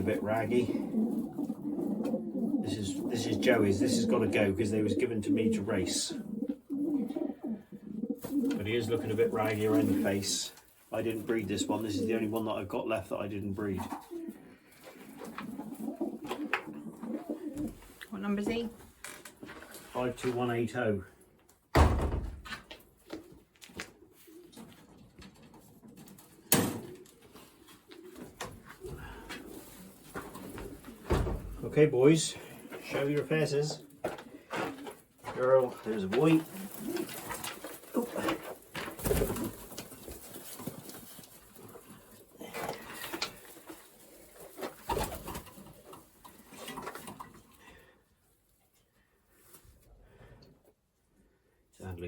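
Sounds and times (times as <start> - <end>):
pigeons cooing: 0.0 - 10.4, 11.0 - 12.6, 13.7 - 17.9, 26.4 - 47.1.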